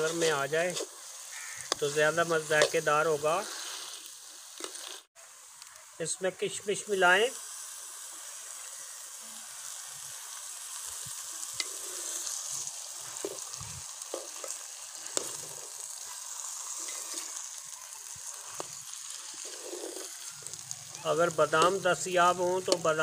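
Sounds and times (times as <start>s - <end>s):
food sizzling in a pan: 0.0s - 23.0s
metal spatula scraping pan: 16.6s - 17.4s.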